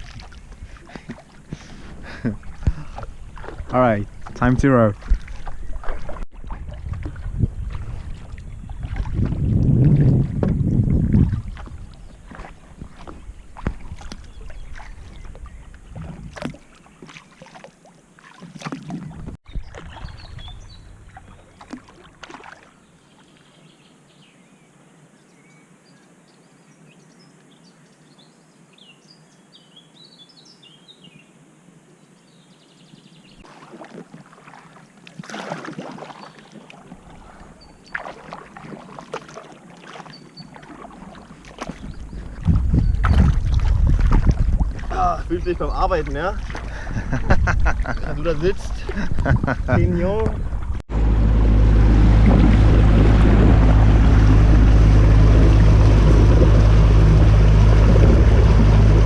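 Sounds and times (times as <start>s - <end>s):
birds chirping: 0.0s - 6.5s, 11.7s - 17.5s, 19.5s - 22.1s, 36.2s - 38.2s, 40.0s - 43.4s, 44.8s - 59.0s
oars splashing and knocking: 0.0s - 23.3s, 33.4s - 59.0s.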